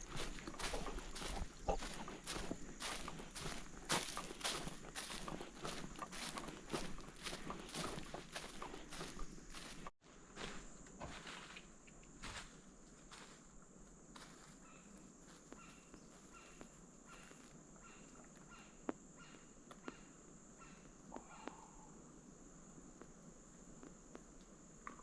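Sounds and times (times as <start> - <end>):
footsteps on trail: 0.0 - 13.6, 14.2 - 17.6
insect chorus buzzing: 0.0 - 25.0.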